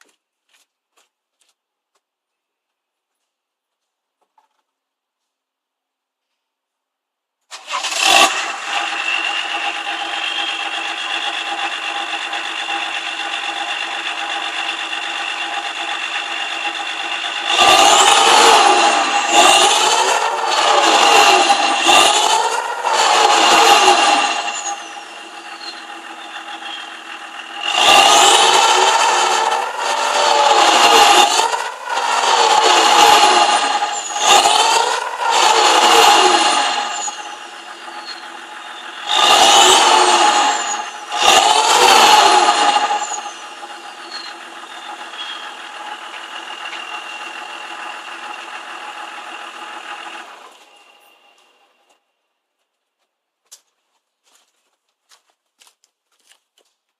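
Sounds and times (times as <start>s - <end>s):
engine revving: 7.5s - 51.5s
diesel engine starting and idling: 7.5s - 52.0s
turbo whistle: 23.0s - 27.0s, 36.1s - 45.7s.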